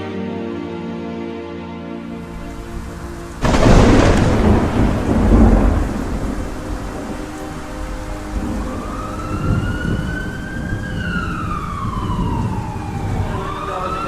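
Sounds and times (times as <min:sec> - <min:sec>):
low rumbling noise: 0:02.2 - 0:14.0
siren wailing: 0:02.3 - 0:14.0.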